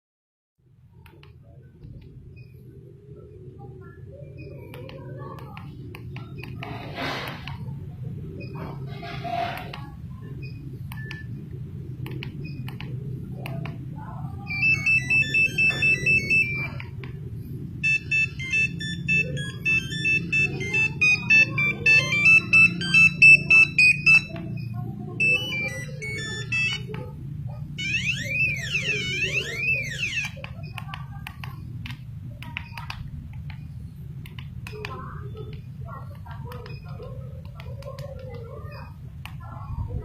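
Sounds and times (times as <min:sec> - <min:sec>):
steady low hum: 0:00.6 - 0:40.0
mobile phone ringtone beeps: 0:14.4 - 0:16.9, 0:17.8 - 0:30.8.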